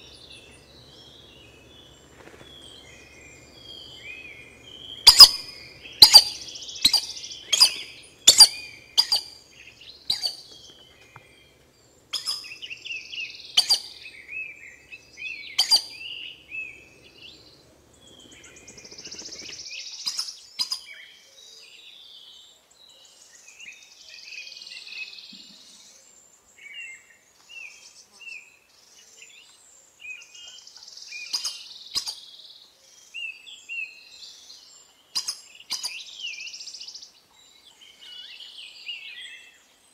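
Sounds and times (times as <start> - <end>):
birds chirping sharply: 0.0 - 21.0
soft hissing bird calls: 0.0 - 21.1, 23.5 - 39.9.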